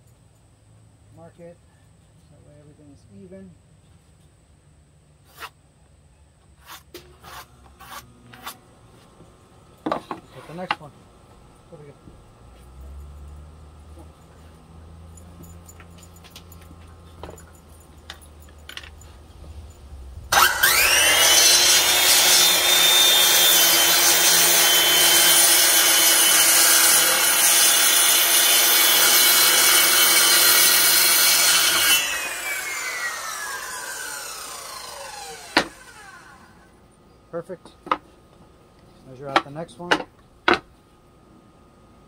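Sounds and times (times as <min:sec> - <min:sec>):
circular saw cutting wood: 0:06.6 - 0:09.1, 0:09.8 - 0:10.9, 0:20.2 - 0:36.7.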